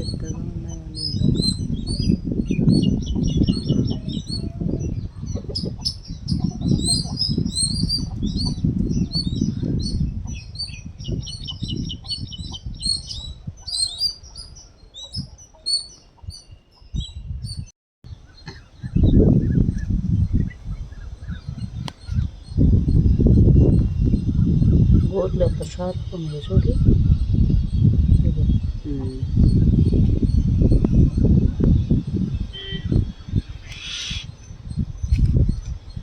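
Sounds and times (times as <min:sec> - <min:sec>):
low rustling buffeting noise: 0:00.0 - 0:14.4, 0:16.9 - 0:36.0
birds chirping: 0:00.0 - 0:36.0.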